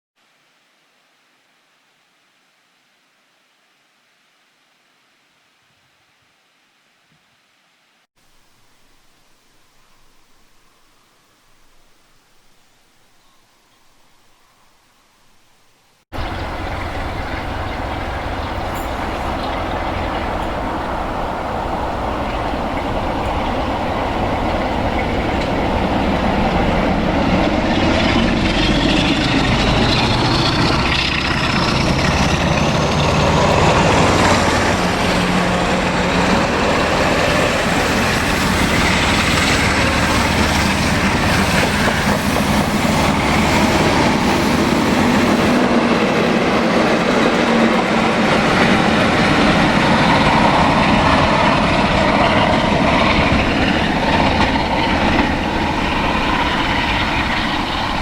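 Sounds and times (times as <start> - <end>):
train engine and wheel noise: 16.1 - 58.0.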